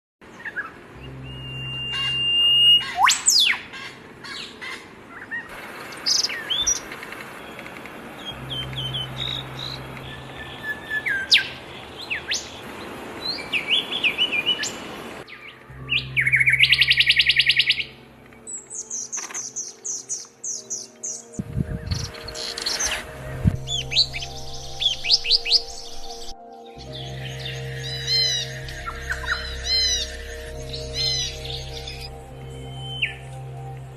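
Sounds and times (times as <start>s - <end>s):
finches chirping and whistling: 18.7s - 33.2s.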